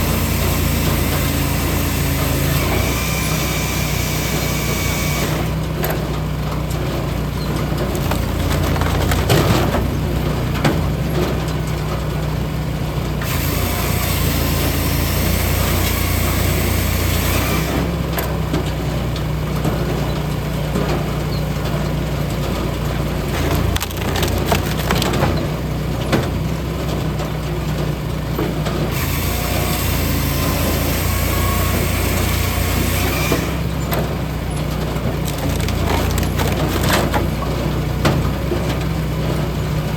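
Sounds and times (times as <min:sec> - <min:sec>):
log splitter engine running: 0:00.0 - 0:39.9
wood cracking and splintering: 0:07.1 - 0:11.4, 0:21.6 - 0:26.5, 0:30.9 - 0:38.8.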